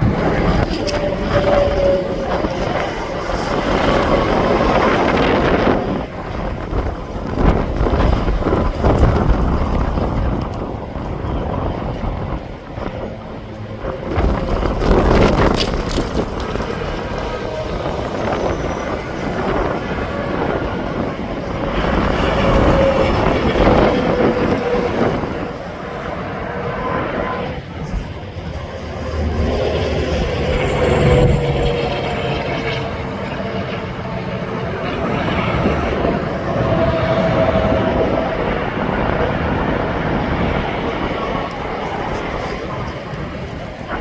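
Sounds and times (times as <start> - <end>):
highway traffic rushing by: 0.0 - 44.0.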